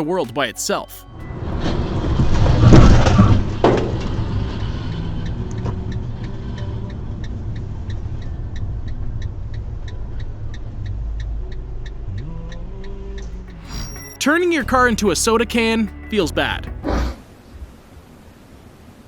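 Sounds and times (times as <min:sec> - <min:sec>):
background music with ticking: 0:00.0 - 0:02.7, 0:04.7 - 0:17.1
low road rumble: 0:01.2 - 0:17.8.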